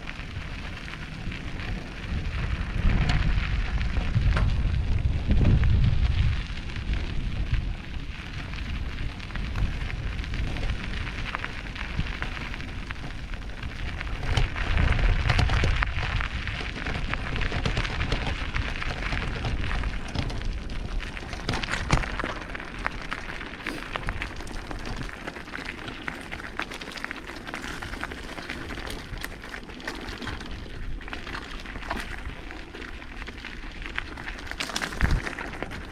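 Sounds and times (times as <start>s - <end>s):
bike rattling: 0.0s - 35.9s
tyres crackling over grit: 0.0s - 35.9s
low rumble: 1.6s - 16.5s.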